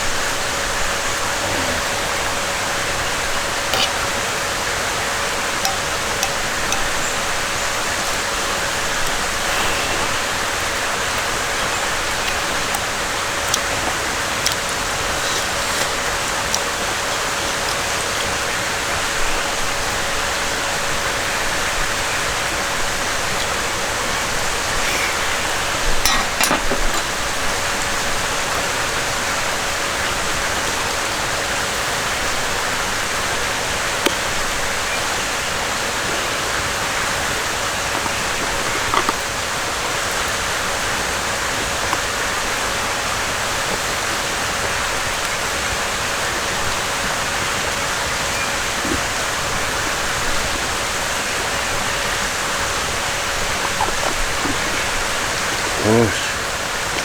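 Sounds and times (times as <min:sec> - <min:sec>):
stream flowing water: 0:00.0 - 0:57.0.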